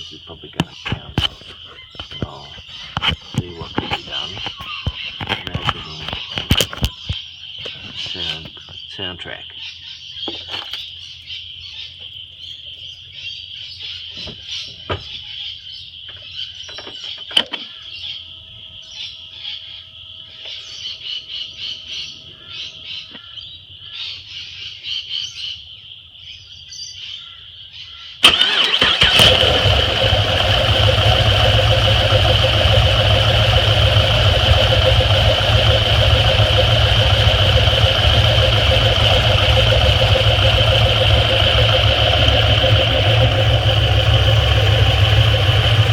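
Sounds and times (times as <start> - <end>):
car engine starting and running: 0.6 - 6.1, 28.2 - 45.9.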